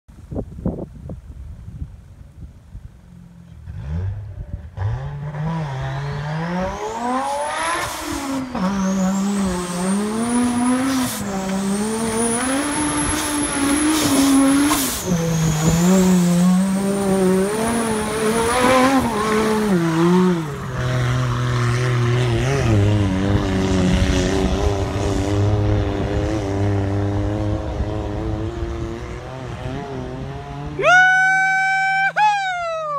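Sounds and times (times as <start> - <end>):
engine revving: 3.5 - 32.0.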